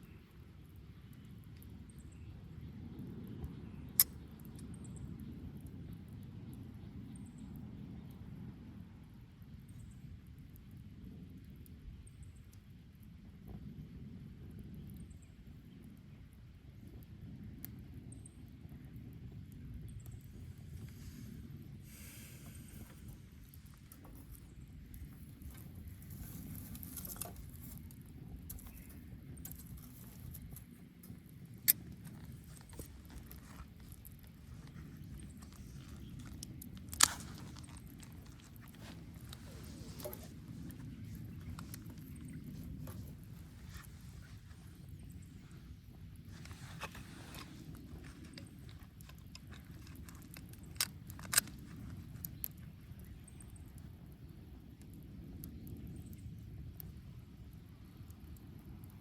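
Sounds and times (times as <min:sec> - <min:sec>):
bonfire crackling: 0:00.0 - 0:59.0.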